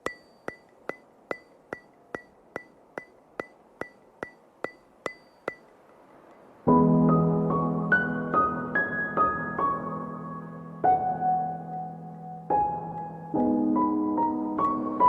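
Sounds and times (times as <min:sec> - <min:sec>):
sharp metronome-like ticks: 0:00.0 - 0:06.5.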